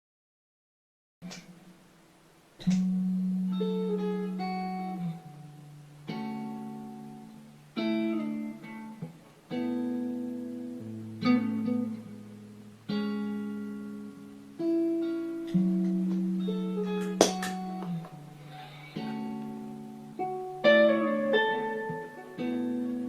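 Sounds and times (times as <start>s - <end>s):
guitar played slowly: 2.6s - 23.0s.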